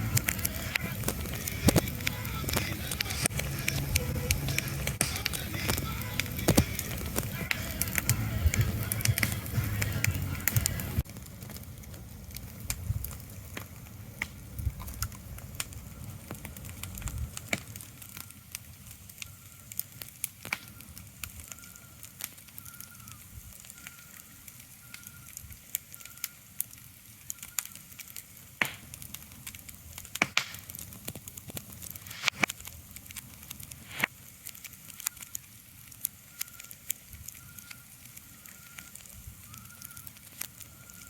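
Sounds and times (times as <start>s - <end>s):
low rumble: 0.0s - 16.2s
crackling clicks and pops: 0.0s - 41.0s.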